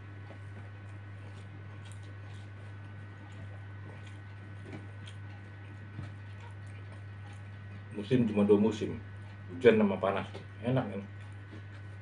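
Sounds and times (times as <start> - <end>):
man chewing food: 0.0 - 12.0
steady low hum: 0.0 - 12.0
wet mouth smacks: 1.7 - 2.6.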